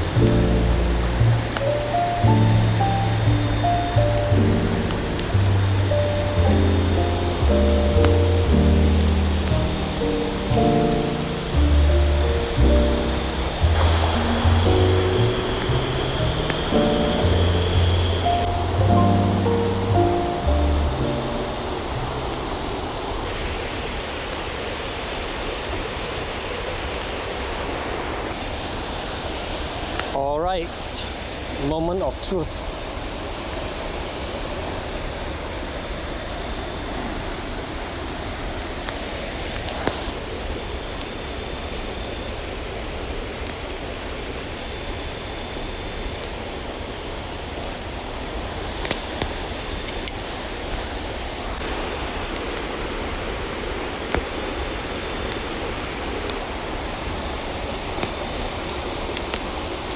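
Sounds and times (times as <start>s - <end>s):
faint clicks: 0.0s - 22.6s
river rushing: 0.0s - 44.8s, 45.4s - 59.9s.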